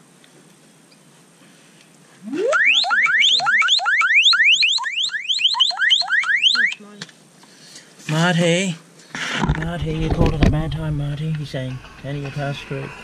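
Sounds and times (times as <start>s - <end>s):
phone ringtone rising sweeps: 2.2s - 6.7s.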